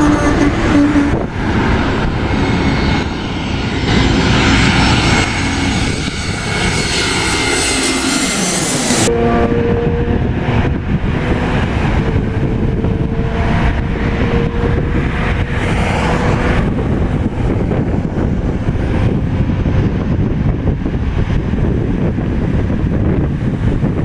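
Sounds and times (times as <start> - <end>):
faint engine whine: 0.0 - 24.0
jet engines rumbling: 0.0 - 24.0
wind buffeting microphone: 0.0 - 24.0.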